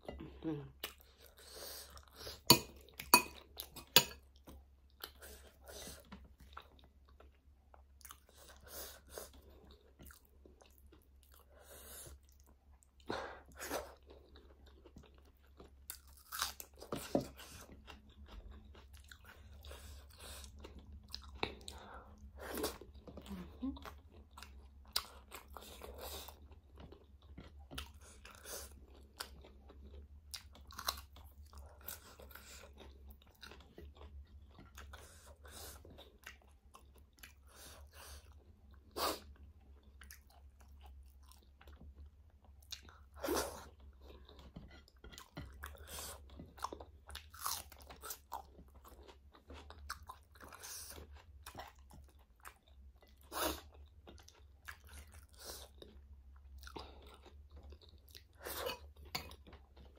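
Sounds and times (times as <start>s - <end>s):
chewing with wet mouth clicks: 9.2s - 11.5s, 13.9s - 37.6s, 38.2s - 59.9s.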